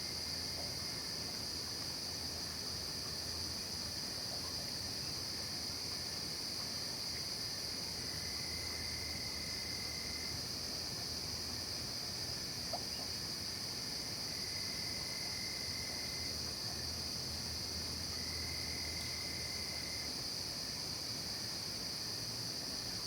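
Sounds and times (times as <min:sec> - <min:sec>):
crickets and insects trilling: 0:00.0 - 0:23.0
fainter lower insect trill: 0:00.0 - 0:23.0
small tick: 0:12.7 - 0:13.1.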